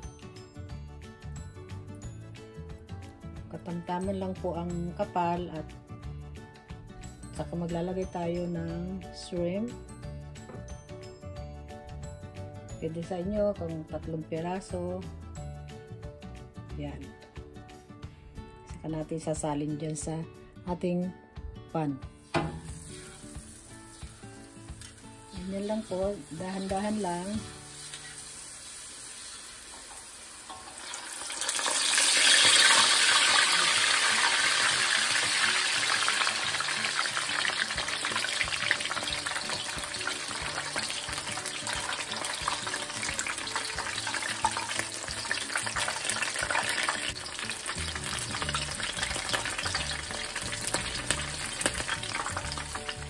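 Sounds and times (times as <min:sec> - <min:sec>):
fritter sizzling in hot oil: 0:22.2 - 0:53.0.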